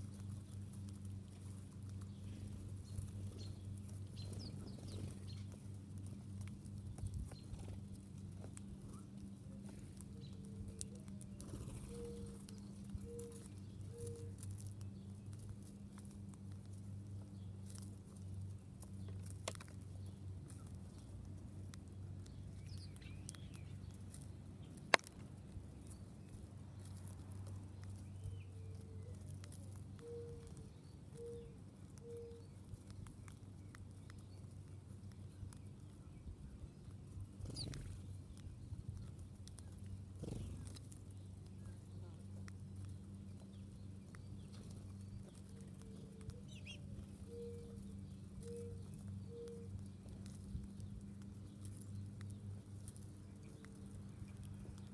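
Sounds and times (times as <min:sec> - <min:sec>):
steady low hum: 0:00.0 - 0:54.9
faint high chirps: 0:44.5 - 0:47.8.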